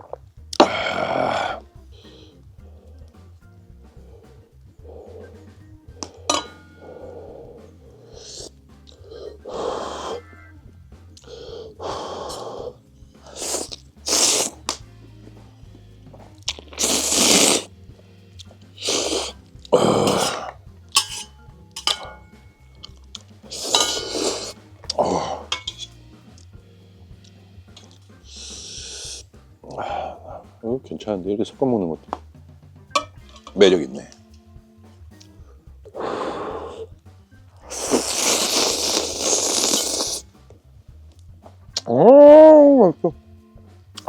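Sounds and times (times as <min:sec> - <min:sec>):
faint background music: 0:00.0 - 0:44.0
chewing: 0:13.2 - 0:14.8, 0:16.4 - 0:17.7, 0:18.4 - 0:21.2, 0:22.8 - 0:25.8, 0:37.6 - 0:40.2
noodles slurped: 0:13.2 - 0:14.8, 0:16.4 - 0:17.7, 0:18.5 - 0:21.2, 0:22.9 - 0:25.8, 0:37.6 - 0:40.2.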